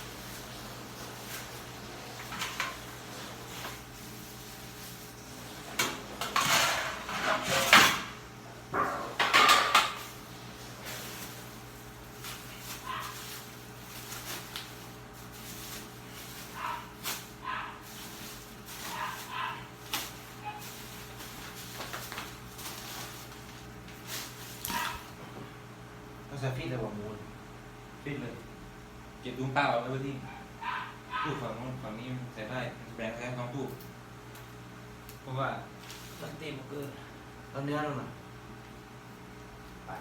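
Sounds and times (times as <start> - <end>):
plastic bags rustling: 0.0 - 7.8, 9.2 - 25.3, 35.7 - 36.4
kitchenware clattering: 2.2 - 3.0, 5.6 - 10.2.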